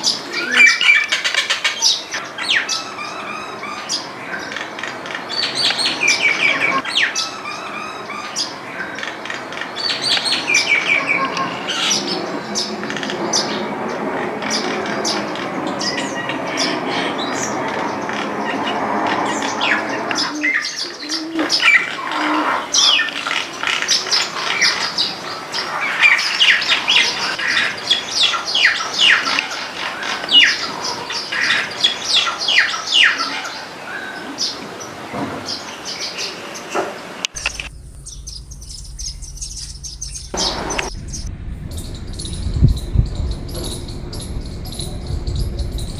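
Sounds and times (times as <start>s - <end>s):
steady background noise: 0.0s - 45.9s
garden birds chirping: 37.4s - 45.9s
low hum: 37.4s - 45.9s.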